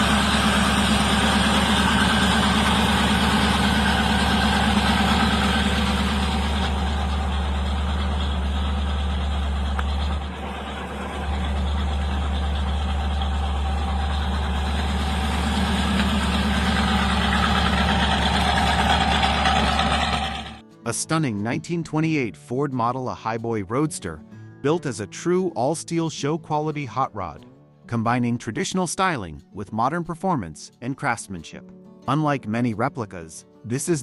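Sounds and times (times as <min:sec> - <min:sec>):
car engine idling: 0:00.0 - 0:20.6.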